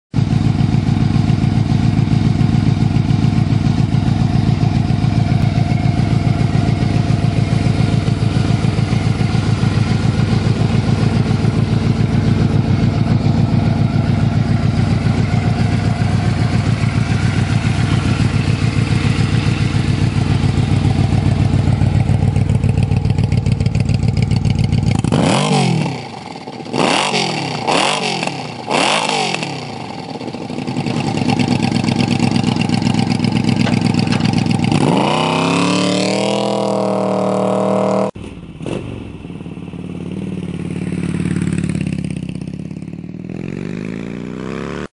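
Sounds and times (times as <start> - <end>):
motorcycle engine idling: 0.2 - 44.7
engine revving: 24.8 - 30.1, 30.7 - 39.1, 43.2 - 44.9.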